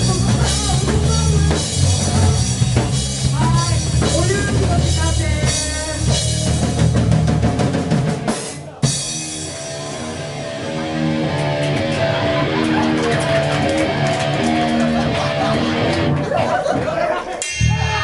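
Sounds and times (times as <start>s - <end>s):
rock band playing: 0.0s - 18.0s
sustained guitar notes: 6.0s - 16.4s, 17.4s - 18.0s.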